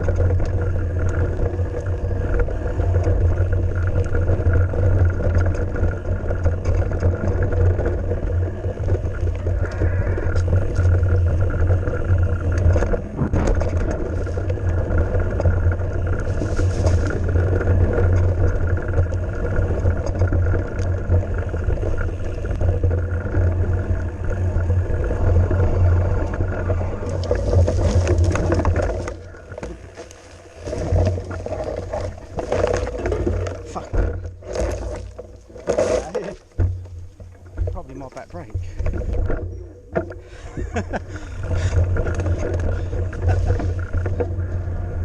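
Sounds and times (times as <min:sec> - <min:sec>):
bike rattles and knocks: 0:00.0 - 0:45.0.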